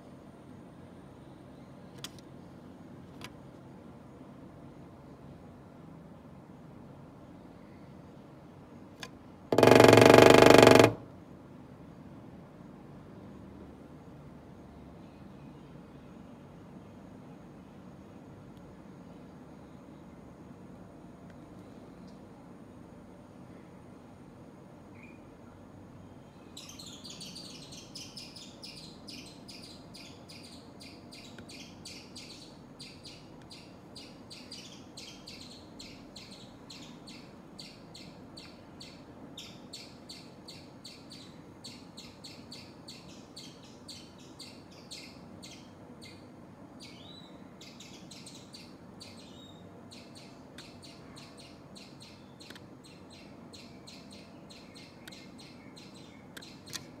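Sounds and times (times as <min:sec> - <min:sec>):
bird chirping: 0:09.5 - 0:11.0, 0:26.3 - 0:56.9.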